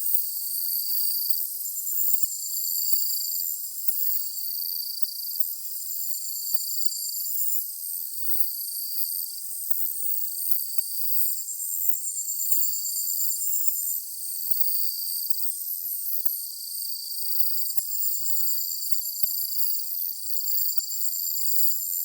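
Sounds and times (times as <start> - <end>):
insects chirping and trilling: 16.2 - 22.0.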